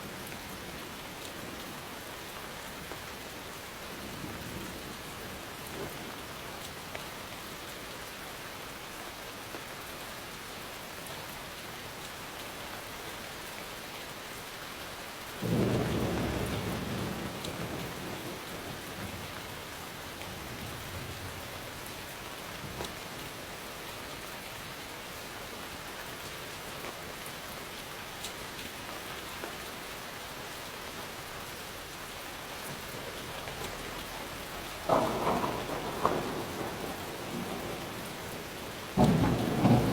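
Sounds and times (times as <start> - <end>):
heavy rain falling: 0.0 - 39.9
thunderclap rumbling: 15.4 - 21.8, 32.6 - 39.9.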